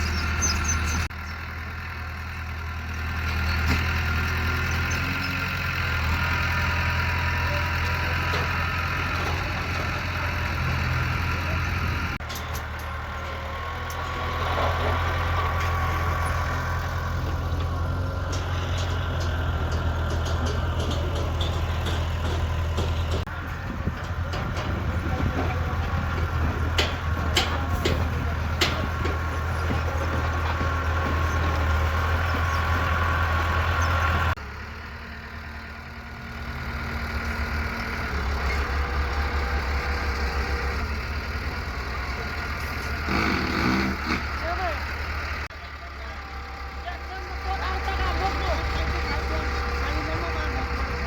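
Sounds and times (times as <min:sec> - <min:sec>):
bulldozer diesel engine running: 0:00.0 - 0:51.0
faint clicks and rattles: 0:17.3 - 0:31.8.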